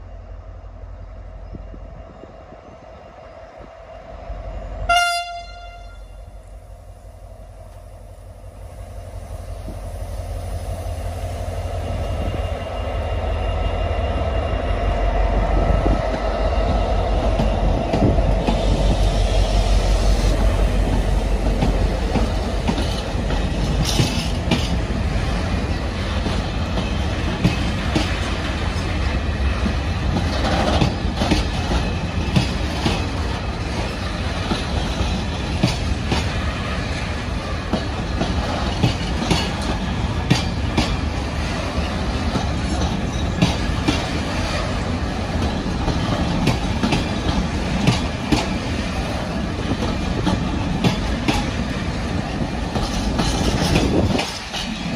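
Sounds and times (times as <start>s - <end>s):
diesel locomotive engine rumble: 0.0s - 54.9s
locomotive horn blast: 4.9s - 6.3s.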